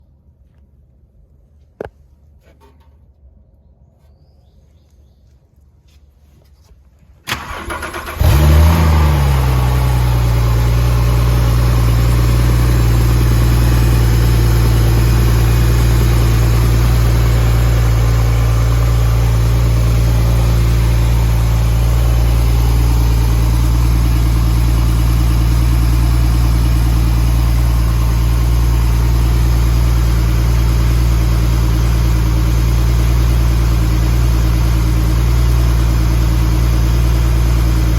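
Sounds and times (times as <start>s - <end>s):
starter motor cranking: 7.3s - 9.3s
car engine revving and idling: 7.3s - 37.9s.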